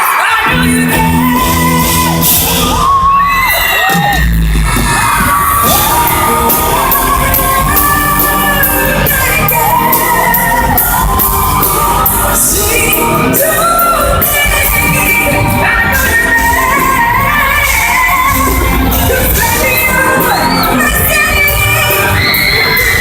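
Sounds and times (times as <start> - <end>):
crowd shouting and cheering: 0.0 - 23.0
live band playing: 0.0 - 23.0
woman singing pop ballad: 5.6 - 23.0.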